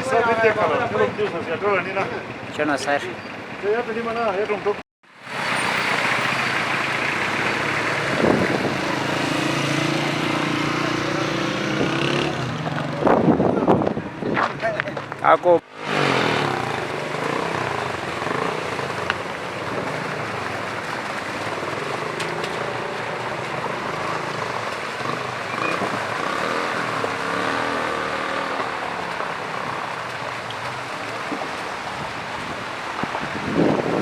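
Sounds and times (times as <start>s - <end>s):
floodwater rushing: 5.1s - 34.0s.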